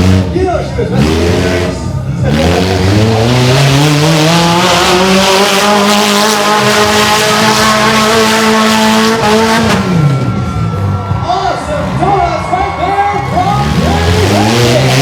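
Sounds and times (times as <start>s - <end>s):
small engine revving high: 0.0s - 10.1s.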